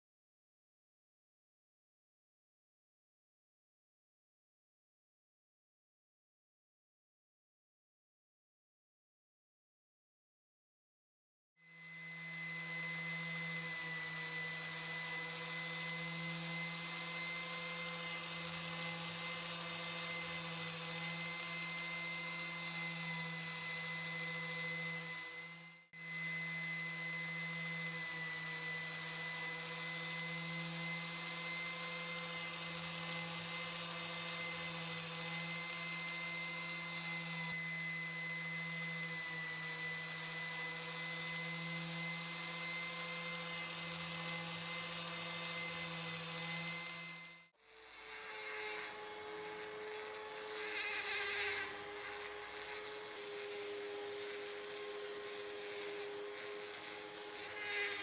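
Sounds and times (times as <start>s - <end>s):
electric power tool motor whining: 11.6s - 58.0s.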